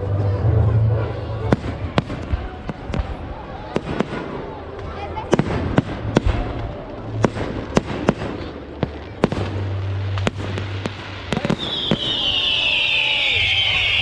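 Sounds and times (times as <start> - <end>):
fireworks bursting with sharp bangs: 1.5 - 14.0
firework screeching hiss: 9.8 - 14.0.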